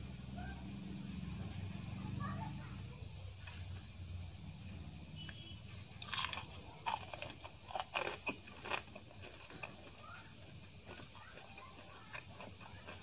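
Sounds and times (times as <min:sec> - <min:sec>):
crunchy chewing of fried snack: 0:03.2 - 0:04.0, 0:04.8 - 0:13.0.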